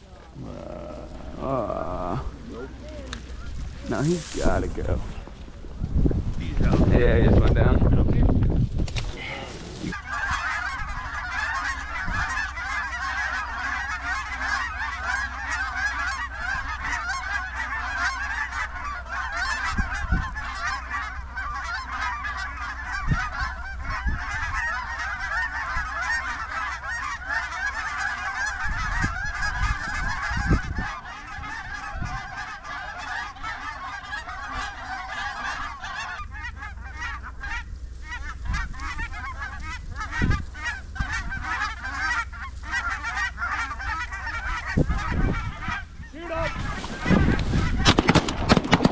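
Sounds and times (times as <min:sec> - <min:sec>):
geese honking and cackling: 0:00.0 - 0:07.7, 0:09.2 - 0:48.9.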